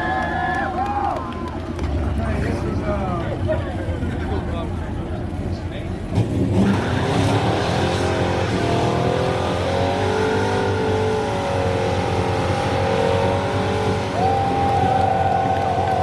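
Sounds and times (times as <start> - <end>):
car engine at high revs: 5.0 - 16.0.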